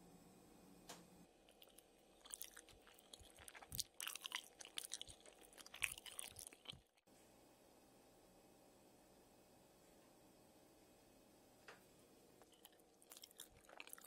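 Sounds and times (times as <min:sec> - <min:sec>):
person chewing with mouth clicks: 0:01.5 - 0:07.0, 0:12.4 - 0:14.0.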